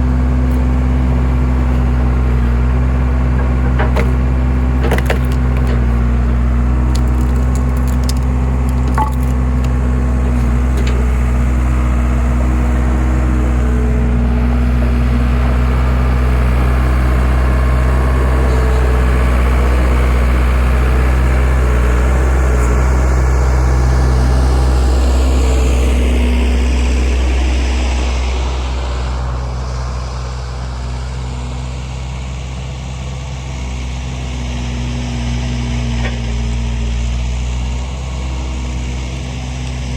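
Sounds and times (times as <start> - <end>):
engine running: 0.0 - 39.9
wood splitting cracks: 3.4 - 10.0.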